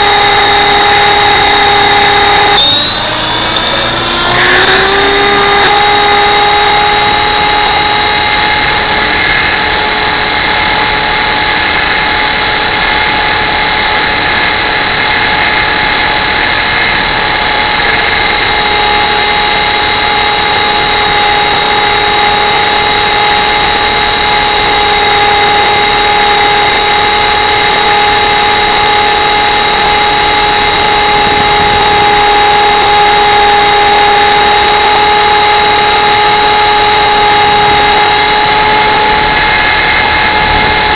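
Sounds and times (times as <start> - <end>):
toy helicopter rotor whine: 0.0 - 40.9.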